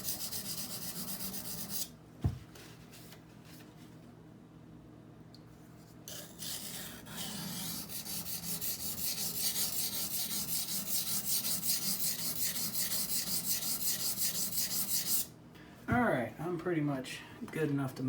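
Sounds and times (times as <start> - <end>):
knife scraping on water stone: 6.1 - 15.3.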